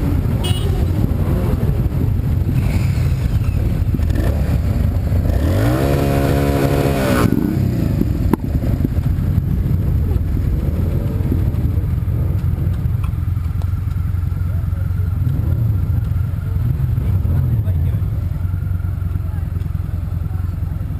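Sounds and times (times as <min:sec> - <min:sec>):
engine revving: 0:00.0 - 0:08.1
car engine: 0:00.0 - 0:20.9
road noise: 0:00.0 - 0:20.9.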